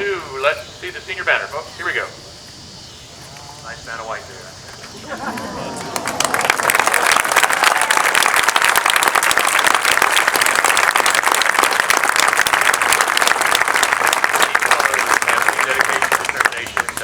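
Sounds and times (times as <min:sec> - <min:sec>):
audience applauding and cheering: 0:05.1 - 0:17.0.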